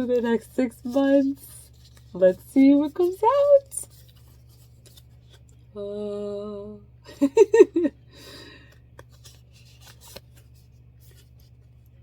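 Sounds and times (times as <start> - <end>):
soft rustle: 0.0 - 5.6.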